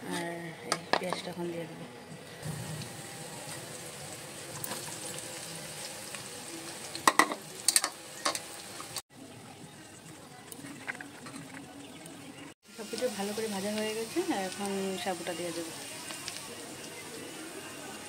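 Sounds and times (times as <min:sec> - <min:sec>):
onion sizzling in hot oil: 0:02.3 - 0:09.0, 0:12.6 - 0:18.0.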